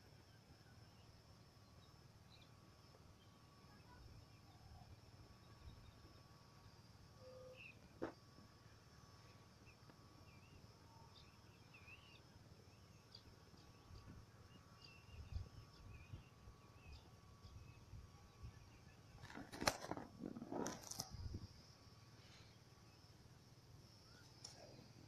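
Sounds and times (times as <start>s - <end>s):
faint bird chirps: 0.2s - 8.1s, 8.7s - 21.4s, 23.9s - 25.0s
clicks and rustling: 19.2s - 21.2s.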